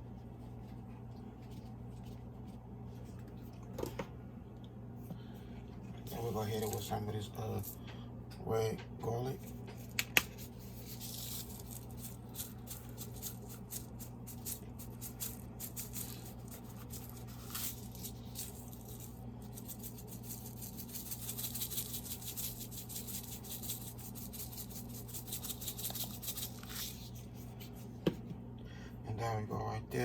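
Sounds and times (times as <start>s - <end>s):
seasoning shaker rattling: 6.3s - 7.8s, 9.8s - 27.8s.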